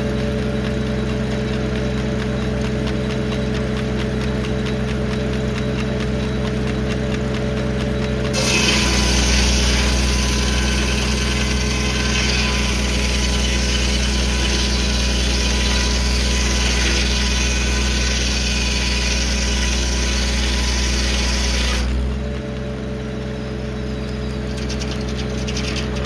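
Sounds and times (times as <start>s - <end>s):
tractor engine running under load: 0.0s - 26.0s
saw blade cutting log: 8.2s - 22.2s, 24.3s - 26.0s.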